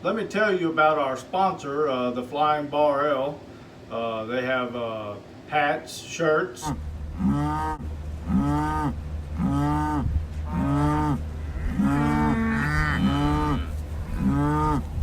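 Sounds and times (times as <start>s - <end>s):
steady low hum: 0.0s - 15.0s
cattle mooing: 6.6s - 15.0s.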